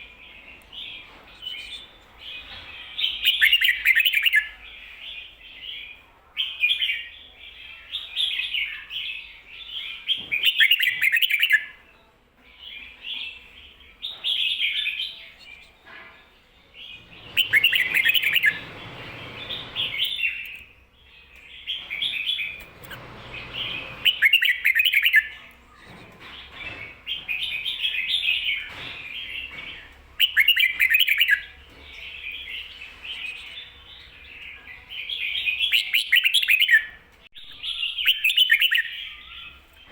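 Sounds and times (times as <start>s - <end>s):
bird singing chirpy phrases: 23.4s - 39.9s.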